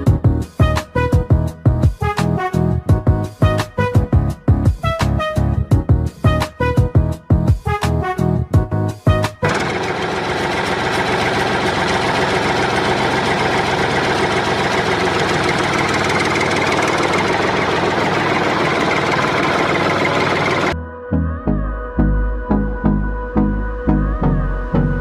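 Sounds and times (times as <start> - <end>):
dump truck engine running: 9.4 - 20.8.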